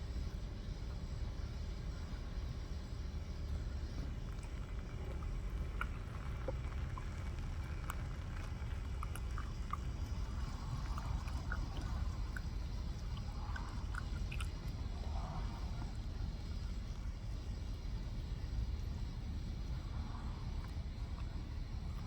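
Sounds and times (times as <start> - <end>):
steady low rumble: 0.0 - 22.0
chewing with wet mouth clicks: 3.8 - 16.9.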